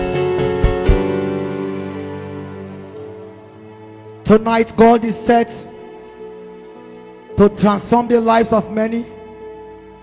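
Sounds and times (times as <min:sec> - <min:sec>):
soft keyboard chords: 0:00.0 - 0:10.0.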